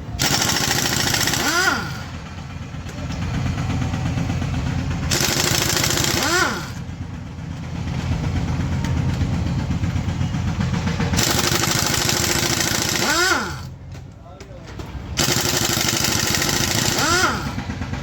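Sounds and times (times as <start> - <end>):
pneumatic impact wrench: 0.0 - 2.3, 5.0 - 6.9, 11.2 - 13.8, 15.2 - 17.8
low rhythmic rumble: 0.0 - 18.0.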